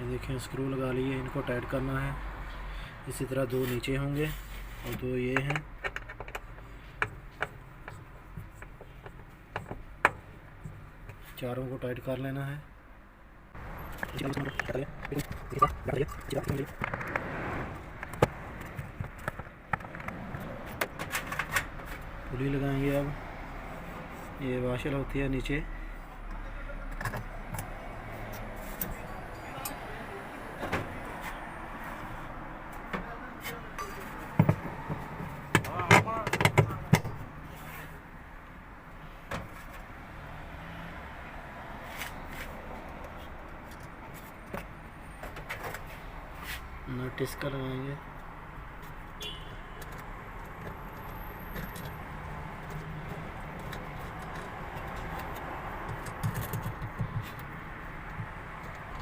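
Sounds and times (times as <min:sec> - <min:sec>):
steady background noise: 0:00.0 - 0:59.0
metal parts clicking and knocking: 0:05.3 - 0:10.2, 0:49.8 - 0:59.0.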